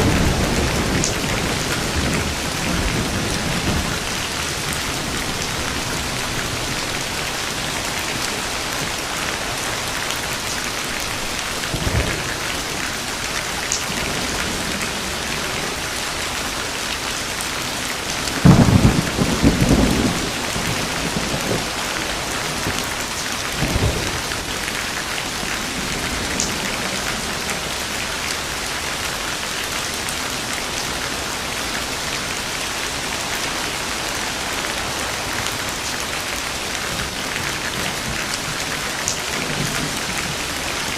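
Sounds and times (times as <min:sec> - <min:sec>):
thunder crack and rumble: 0:00.0 - 0:16.0, 0:18.0 - 0:28.3, 0:36.9 - 0:40.9
heavy rain: 0:00.0 - 0:40.9.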